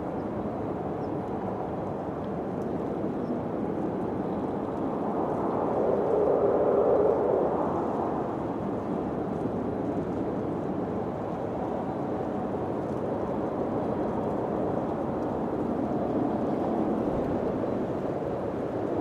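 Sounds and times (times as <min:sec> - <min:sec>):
wind blowing: 0:03.4 - 0:10.4.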